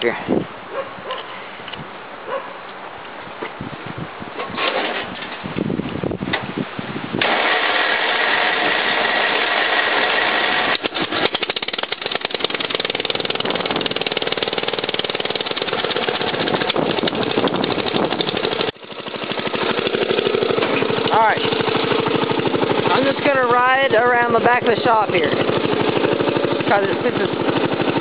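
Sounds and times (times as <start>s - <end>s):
lawn tractor engine running: 7.2s - 28.0s
starter cranking: 7.2s - 28.0s.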